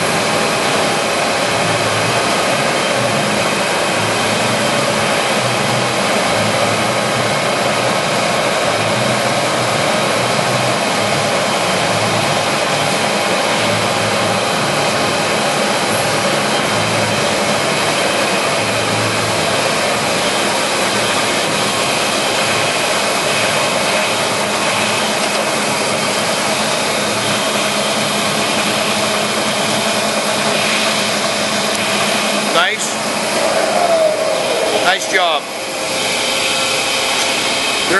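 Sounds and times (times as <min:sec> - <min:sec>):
lathe cutting metal: 0:00.0 - 0:37.9.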